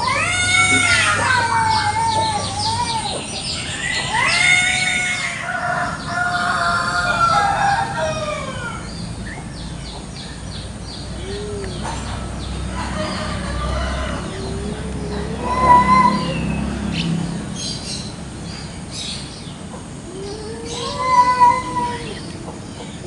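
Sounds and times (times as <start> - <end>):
rooster crowing: 3.7 - 8.9, 12.7 - 16.7.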